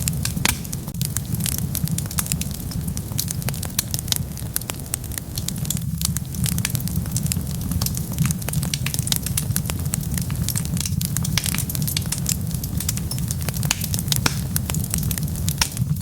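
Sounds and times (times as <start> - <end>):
fire crackling and popping: 0.0 - 16.0
flames rumbling: 0.0 - 16.0.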